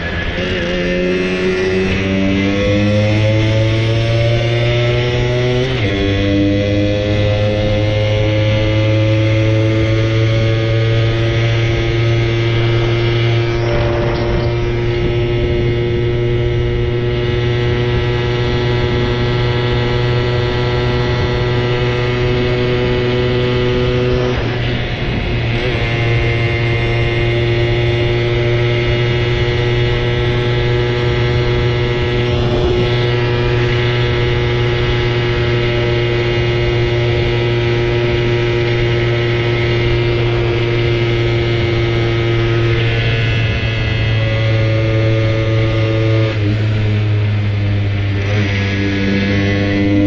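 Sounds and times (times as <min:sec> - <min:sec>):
moped engine droning: 0:00.0 - 0:50.0.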